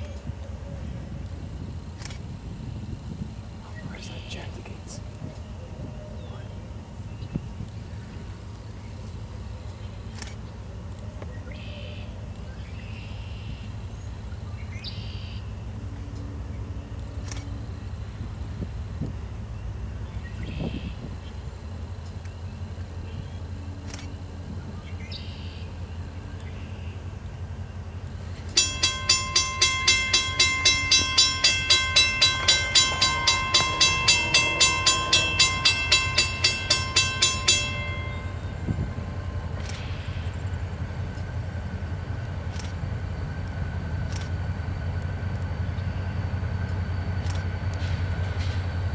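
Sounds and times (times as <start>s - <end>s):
steady low rumble: 0.0s - 11.5s, 12.1s - 48.6s
songbirds chirping: 3.6s - 15.8s
railroad crossing bell ringing: 13.0s - 24.6s, 27.4s - 48.9s.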